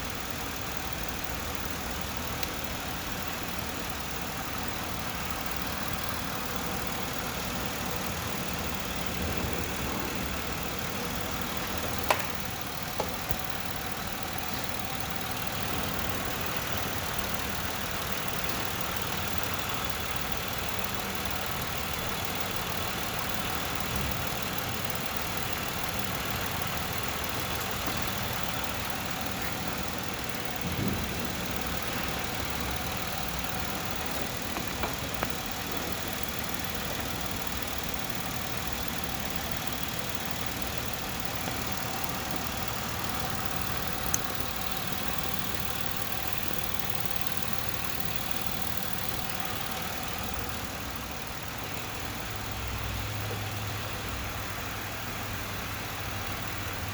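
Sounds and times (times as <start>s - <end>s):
car engine idling: 0.0s - 56.9s
faint clicks and knocks: 11.3s - 15.4s, 26.6s - 38.8s.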